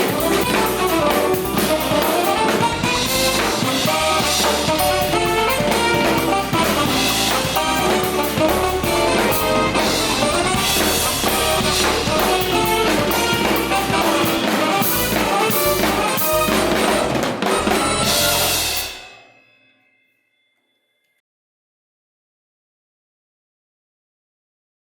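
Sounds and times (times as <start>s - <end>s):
band playing with drum kit: 0.0s - 19.2s.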